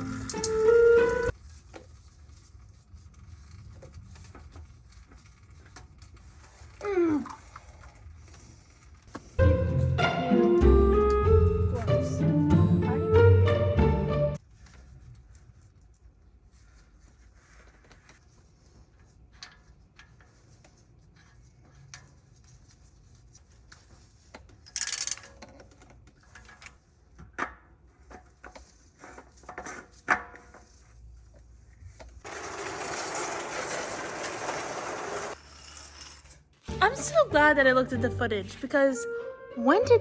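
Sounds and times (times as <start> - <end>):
tools and parts handled: 17.7 - 31.0.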